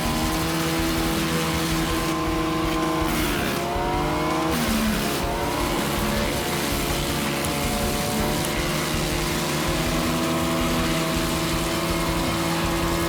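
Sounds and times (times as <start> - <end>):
wood chipper engine under load: 0.0 - 13.0.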